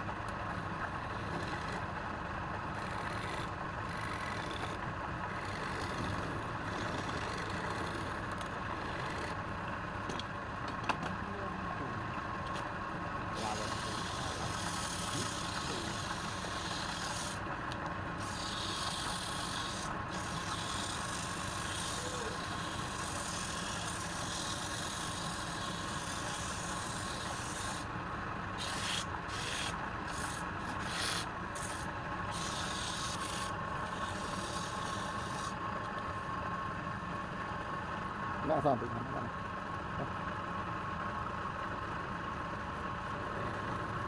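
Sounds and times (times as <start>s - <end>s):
tool scraping spinning wood: 0.0s - 9.4s, 13.3s - 27.9s, 28.5s - 36.3s, 43.2s - 44.0s
wood lathe motor running: 0.9s - 9.4s, 13.3s - 36.3s.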